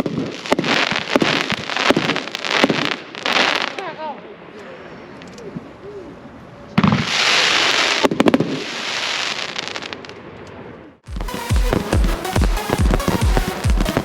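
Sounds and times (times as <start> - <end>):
sharp firework pops: 0.0 - 3.9, 8.0 - 8.6.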